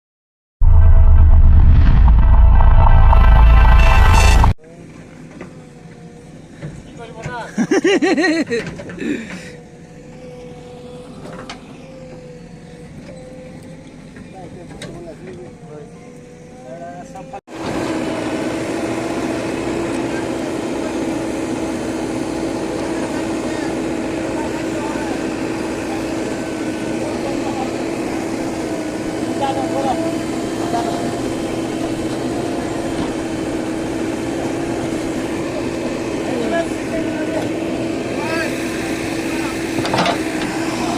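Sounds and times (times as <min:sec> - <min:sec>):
diesel engine running: 0:00.6 - 0:04.6, 0:17.6 - 0:40.9
heavy machine engine rumbling: 0:00.6 - 0:04.6
steady hum: 0:00.6 - 0:04.6.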